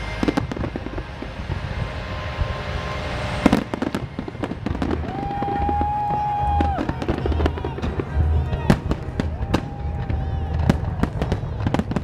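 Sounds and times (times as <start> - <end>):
steady high tone: 0.0 - 9.6
low firework booms: 3.4 - 12.0
fireworks crackling pops: 3.5 - 12.0.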